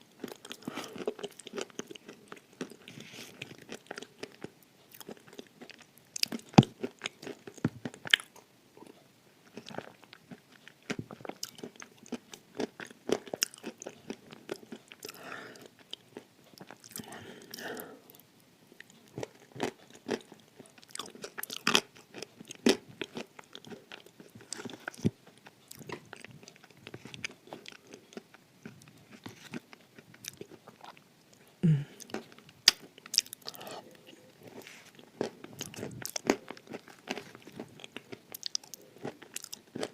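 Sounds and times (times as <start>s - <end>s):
clay being chewed with crunches: 18.8s - 39.9s.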